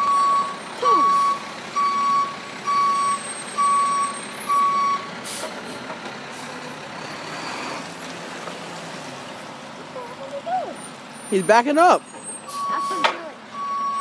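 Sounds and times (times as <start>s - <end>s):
reversing alarm beeping: 0.0s - 5.1s, 11.4s - 14.0s
street traffic: 0.0s - 14.0s
truck idling: 0.0s - 14.0s.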